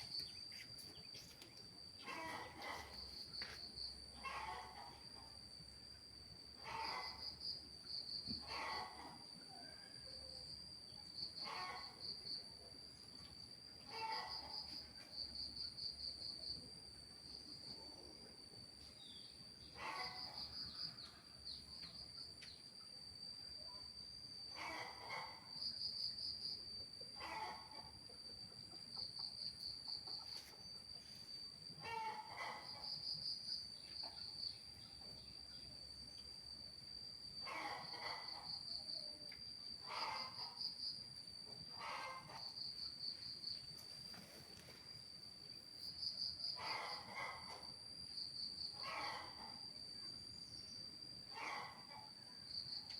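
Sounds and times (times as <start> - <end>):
crickets trilling: 0.0 - 52.9.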